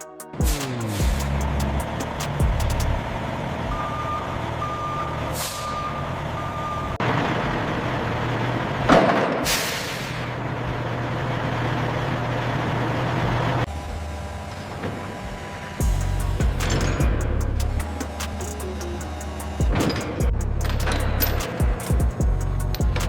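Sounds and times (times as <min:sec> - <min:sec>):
truck engine running: 0:00.4 - 0:05.4, 0:15.4 - 0:23.0
truck reversing alarm beeping: 0:00.5 - 0:07.2
air brake hissing: 0:05.3 - 0:06.0, 0:09.4 - 0:10.4.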